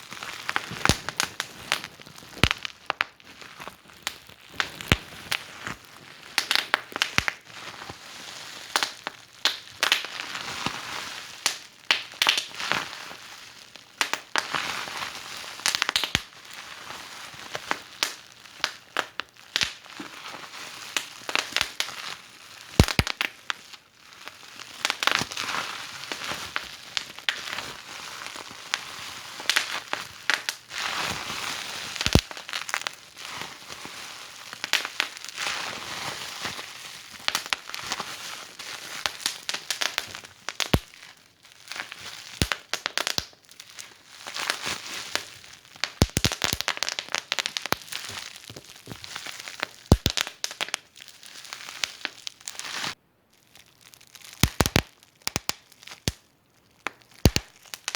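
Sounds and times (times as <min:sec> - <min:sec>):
wood fire crackling: 0:00.2 - 0:05.8, 0:22.8 - 0:23.3, 0:32.0 - 0:32.9, 0:45.2 - 0:50.9, 0:54.4 - 0:56.2, 0:56.8 - 0:57.9.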